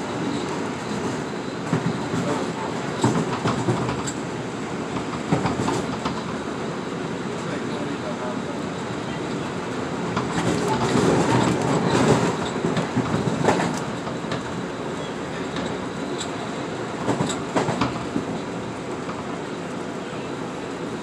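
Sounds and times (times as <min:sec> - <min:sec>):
train wheels rumbling on rail: 0:00.0 - 0:21.0
wheels clicking on track: 0:00.3 - 0:04.3, 0:04.9 - 0:06.5, 0:09.0 - 0:19.9.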